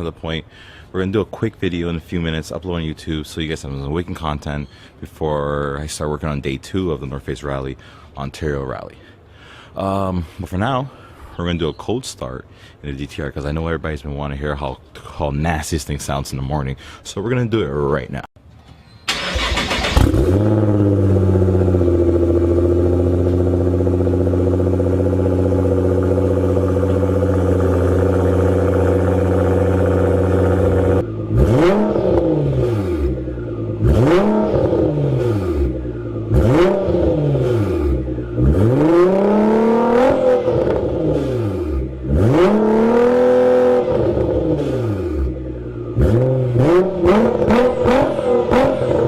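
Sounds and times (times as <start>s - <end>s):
car engine fast idle: 19.1s - 31.0s
car engine throttle blips: 19.1s - 49.0s.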